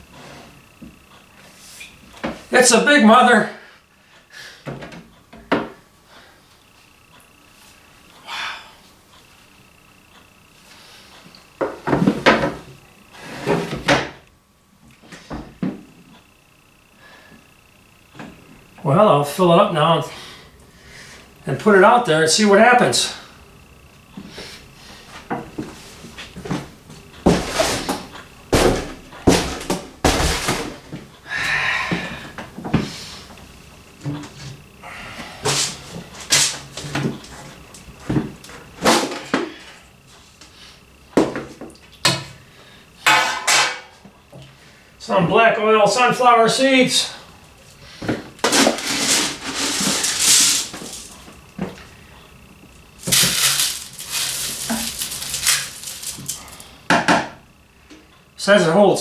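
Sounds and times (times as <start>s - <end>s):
bird feeder rustling and knocking: 53.0s - 56.6s.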